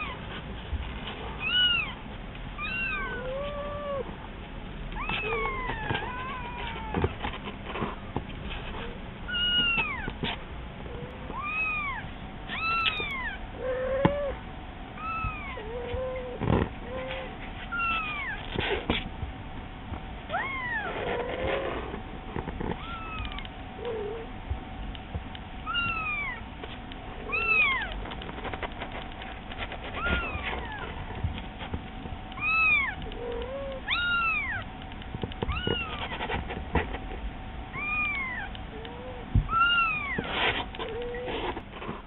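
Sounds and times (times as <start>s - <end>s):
cat meowing lower: 2.6s - 4.1s, 5.0s - 7.2s, 11.3s - 14.4s, 15.0s - 18.4s, 20.3s - 21.8s, 22.8s - 24.3s, 25.6s - 26.4s, 27.2s - 27.9s, 30.0s - 30.9s, 32.4s - 34.7s, 35.5s - 36.2s, 37.7s - 41.3s
kitten mewing: 5.0s - 7.2s, 27.2s - 28.0s, 29.9s - 31.0s, 35.5s - 36.4s.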